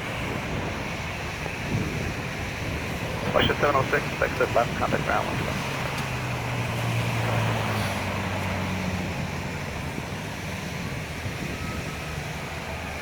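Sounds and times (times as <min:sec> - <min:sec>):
jet engine rumble: 0:01.7 - 0:05.9.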